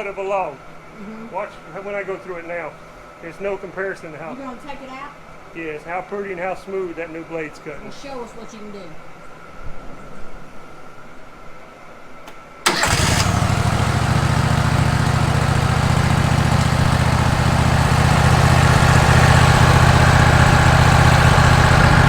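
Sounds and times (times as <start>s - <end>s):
sawmill engine running: 12.7s - 22.0s.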